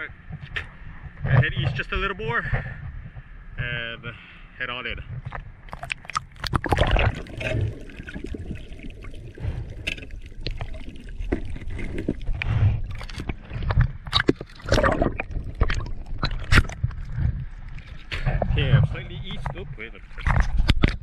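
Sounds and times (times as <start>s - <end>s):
water splashing from swimming: 5.2s - 18.7s
low rumble: 6.6s - 20.6s.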